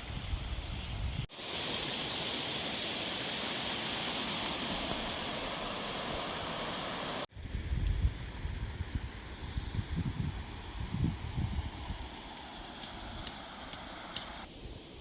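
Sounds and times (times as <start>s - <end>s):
gusty wind on microphone: 0.0s - 1.3s, 4.7s - 12.3s
river flowing: 1.3s - 7.3s, 11.6s - 14.5s.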